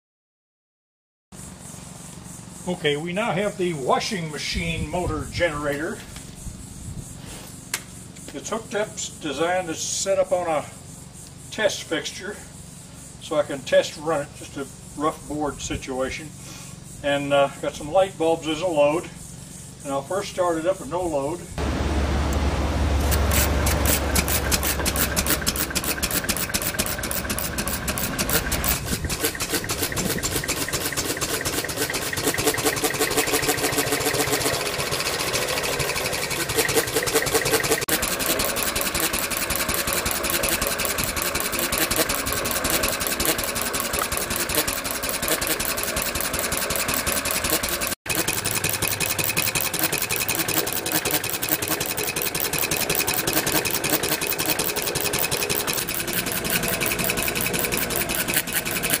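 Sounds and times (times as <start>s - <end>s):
engine running steadily: 1.4s - 59.0s.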